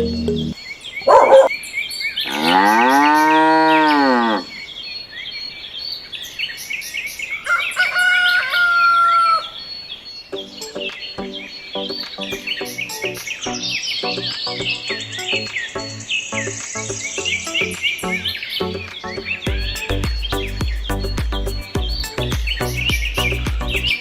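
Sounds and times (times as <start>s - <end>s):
birds chirping: 0.0s - 24.0s
cow mooing: 2.2s - 4.5s.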